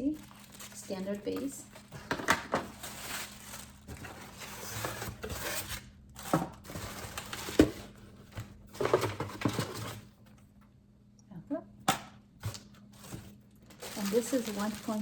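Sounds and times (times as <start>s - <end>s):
packaging crinkling: 0.2s - 5.6s, 12.5s - 15.0s.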